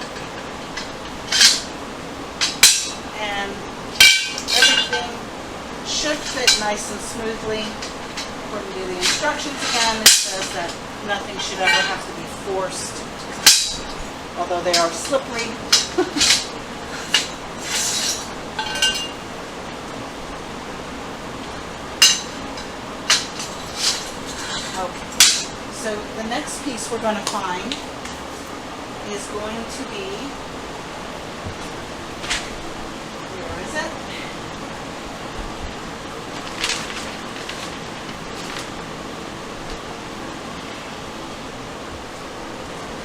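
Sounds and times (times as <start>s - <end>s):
steel rails clanking: 0.0s - 19.3s, 21.5s - 28.2s
metal sliding scrape: 9.0s - 10.8s, 15.7s - 19.2s, 23.1s - 25.5s
ringing metal clink: 11.4s - 12.1s, 13.4s - 14.0s, 22.0s - 22.4s.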